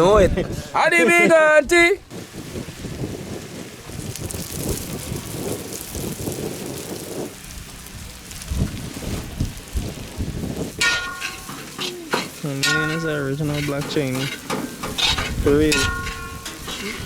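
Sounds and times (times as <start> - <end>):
rice sizzling in a pot: 2.1 - 17.0.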